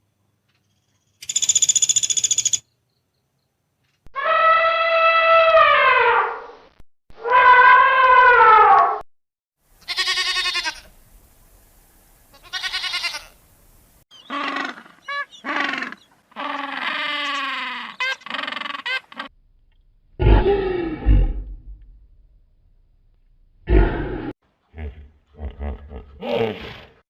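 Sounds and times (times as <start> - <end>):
livestock bleating: 9.8 - 10.9, 12.3 - 13.4.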